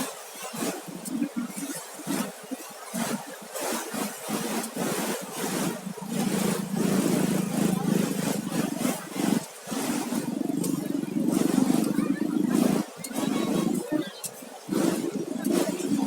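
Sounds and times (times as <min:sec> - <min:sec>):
surf: 0:00.0 - 0:16.0
wind: 0:00.0 - 0:16.0
vehicle engine running: 0:05.5 - 0:13.8.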